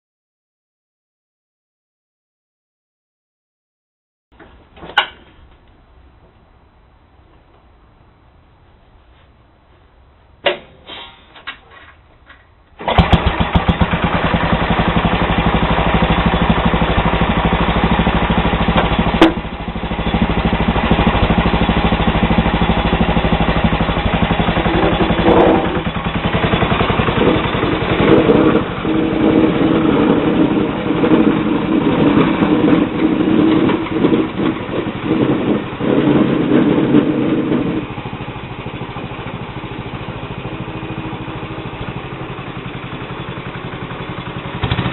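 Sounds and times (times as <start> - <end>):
garden tractor engine running: 9.9 - 44.9.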